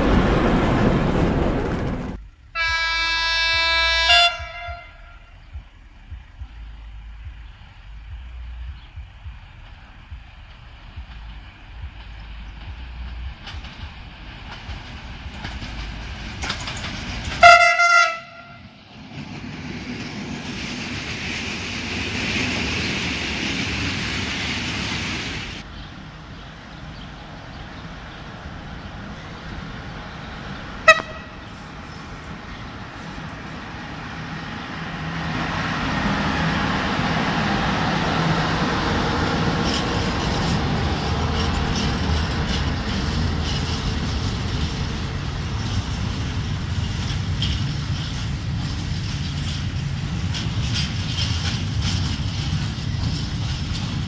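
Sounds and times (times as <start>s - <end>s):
train running on rails: 0.0s - 54.0s
train horn blast: 2.6s - 5.6s, 17.3s - 18.7s, 30.8s - 31.6s.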